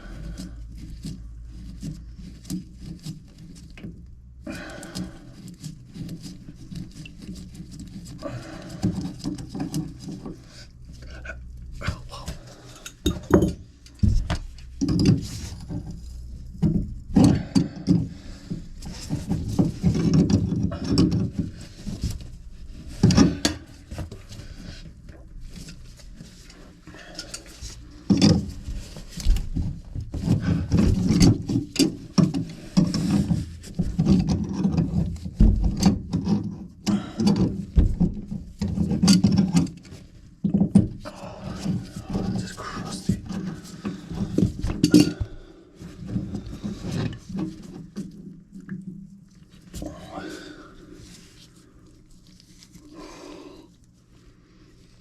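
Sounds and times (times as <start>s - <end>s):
tools knocking and scraping: 5.0s - 49.0s
dull thuds: 28.0s - 36.3s, 37.5s - 39.0s.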